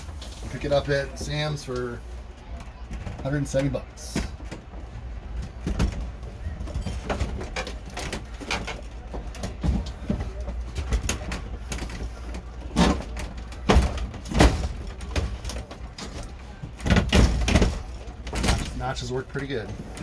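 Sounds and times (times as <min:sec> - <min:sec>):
air conditioner knocking and scraping: 0:00.0 - 0:20.0.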